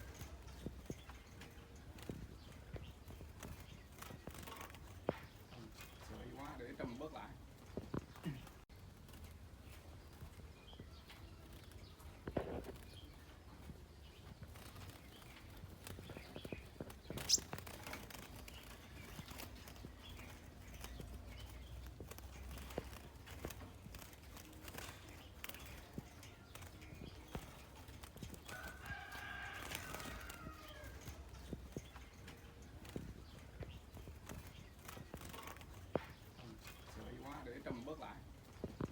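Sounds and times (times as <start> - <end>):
small birds chirping: 0.0 - 38.9
bird twittering call: 17.1 - 17.6.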